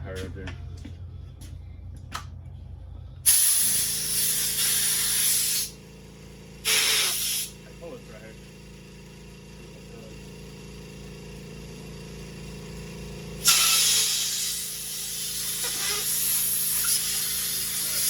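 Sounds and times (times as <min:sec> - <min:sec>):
low hum: 0:00.0 - 0:04.0
compressed air blow gun hissing: 0:03.2 - 0:05.8, 0:06.6 - 0:07.6, 0:13.4 - 0:18.0.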